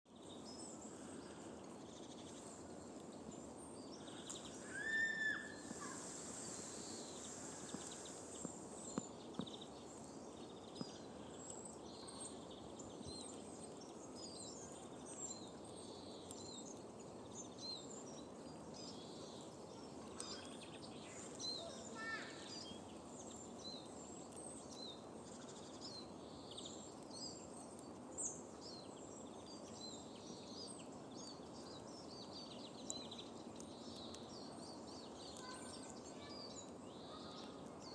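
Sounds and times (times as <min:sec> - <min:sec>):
small birds chirping: 0:00.1 - 0:37.9
loud bird call: 0:04.6 - 0:06.2.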